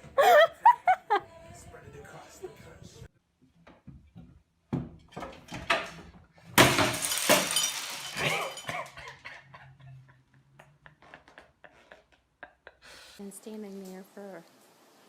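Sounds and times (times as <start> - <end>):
loud crash with ringing clinks: 6.6 - 9.0.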